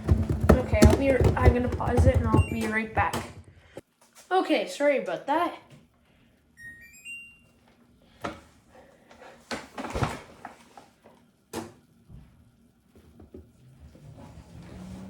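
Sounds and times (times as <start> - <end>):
knocks and clunks of handling: 0.0 - 3.8.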